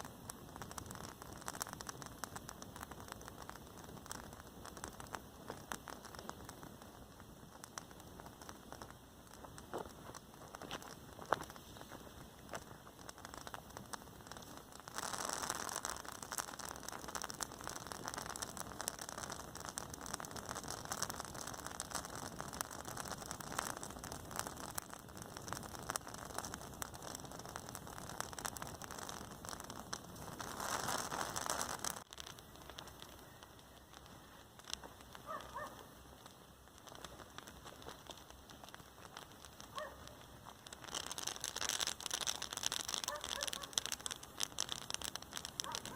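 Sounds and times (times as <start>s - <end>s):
rain pattering: 0.0s - 45.9s.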